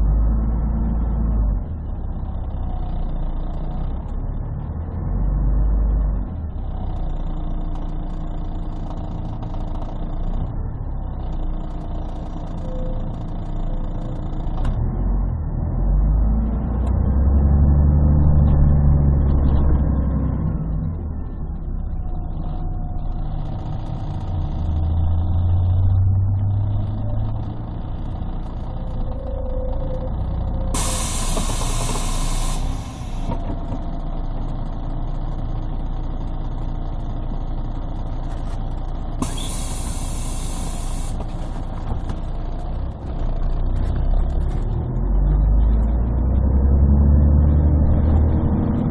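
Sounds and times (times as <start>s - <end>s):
bus diesel engine running: 18.9s - 46.1s
compressed air hissing: 30.8s - 33.3s, 39.2s - 41.6s.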